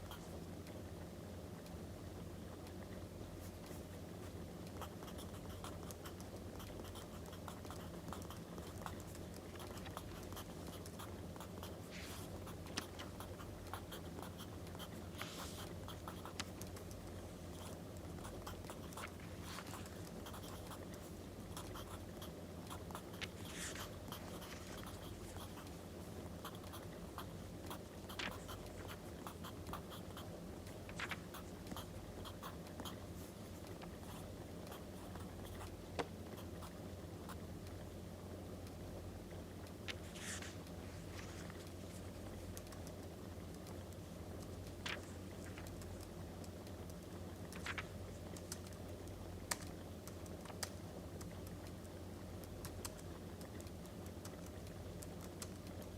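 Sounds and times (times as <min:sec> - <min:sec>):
writing on paper: 0:17.5 - 0:20.9, 0:21.6 - 0:25.7
paper rustling: 0:30.9 - 0:31.2, 0:39.9 - 0:42.0, 0:47.5 - 0:47.9.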